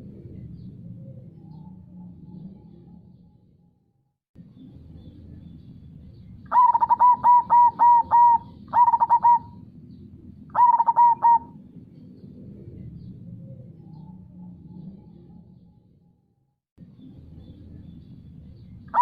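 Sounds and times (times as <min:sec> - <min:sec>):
dove cooing: 0:06.5 - 0:09.6, 0:10.5 - 0:11.7.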